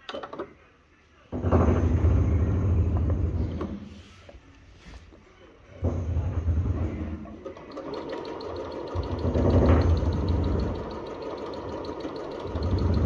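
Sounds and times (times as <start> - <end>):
sewing machine stitching: 5.8 - 13.0.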